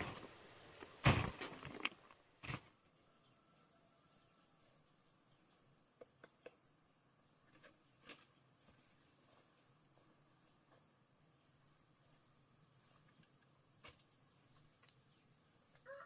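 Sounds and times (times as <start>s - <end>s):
insect trill: 0.0s - 16.0s.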